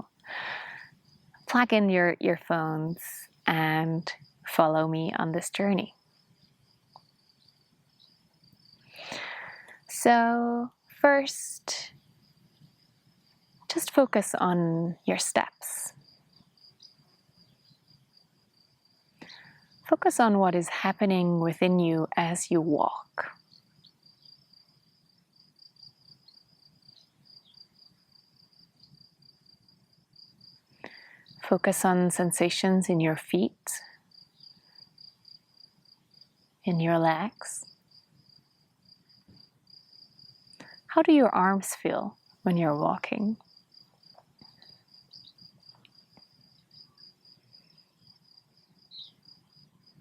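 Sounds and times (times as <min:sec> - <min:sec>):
faint insect chirping: 0:00.0 - 0:50.0.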